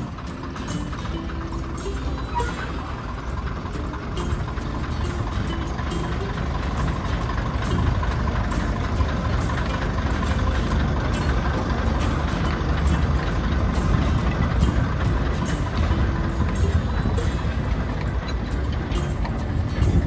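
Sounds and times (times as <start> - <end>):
train diesel engine rumbling: 0.0 - 20.0.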